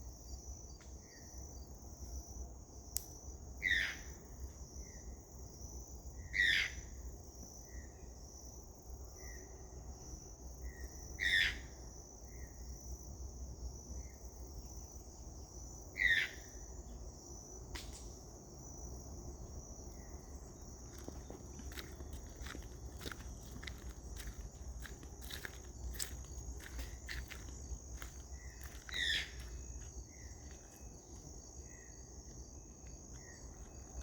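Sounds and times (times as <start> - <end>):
insects droning: 0.0 - 34.0
toucan yelping calls: 3.6 - 4.0, 6.4 - 6.8, 11.2 - 11.6, 16.0 - 16.4, 28.9 - 29.4.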